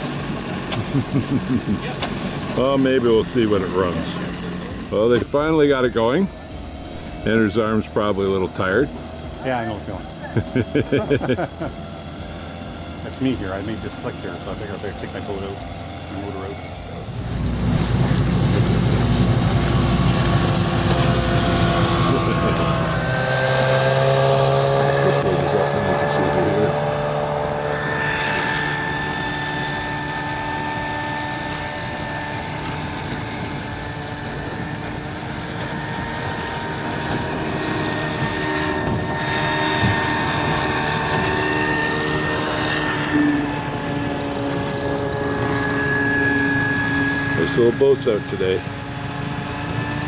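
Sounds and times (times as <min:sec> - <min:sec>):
heavy low rumble: 0:00.0 - 0:49.9
outboard motor running: 0:00.0 - 0:50.0.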